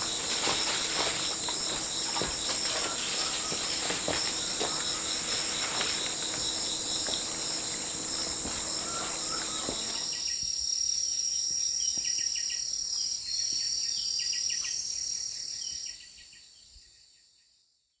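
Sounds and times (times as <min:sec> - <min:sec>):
small knocks: 0:00.0 - 0:10.1
insects shrilling: 0:00.0 - 0:10.2
pulsed chirping trills: 0:00.0 - 0:10.2.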